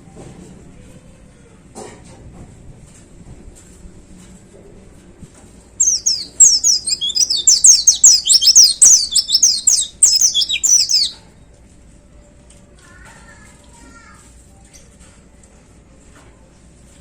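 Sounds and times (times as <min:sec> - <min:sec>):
bird singing rapid chirps: 0:05.8 - 0:11.2.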